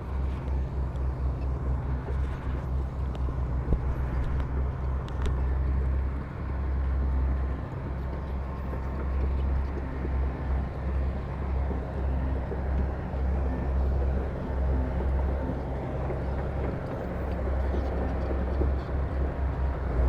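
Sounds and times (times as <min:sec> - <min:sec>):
diesel machinery rumbling: 0:00.0 - 0:20.0.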